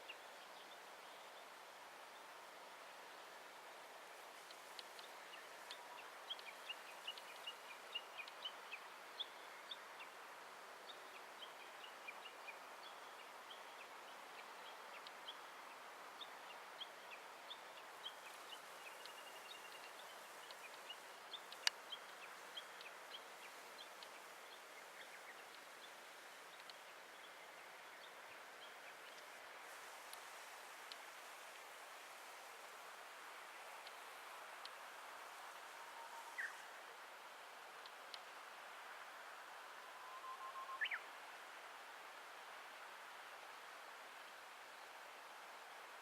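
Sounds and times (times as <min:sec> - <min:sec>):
soft hiss: 0:00.0 - 0:46.0
small birds chirping: 0:04.2 - 0:32.8.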